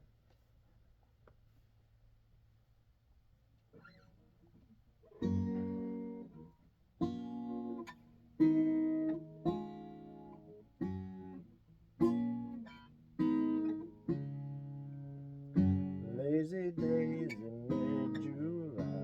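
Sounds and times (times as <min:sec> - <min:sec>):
acoustic guitar strumming chords: 0:05.2 - 0:19.0.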